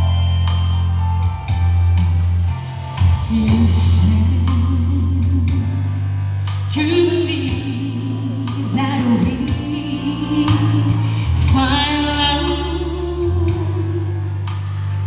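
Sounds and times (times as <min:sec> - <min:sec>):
backing track with heavy bass: 0:00.0 - 0:15.0
woman singing with vibrato: 0:03.3 - 0:06.0, 0:06.7 - 0:14.4.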